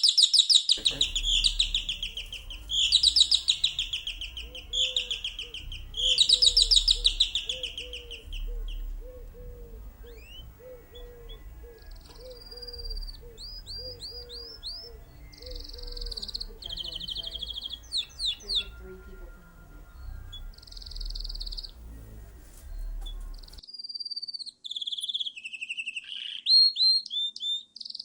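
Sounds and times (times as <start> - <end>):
songbirds trilling: 0.0 - 23.6
short low bird note: 0.8 - 23.6
thin rising bird whistles: 1.0 - 18.5.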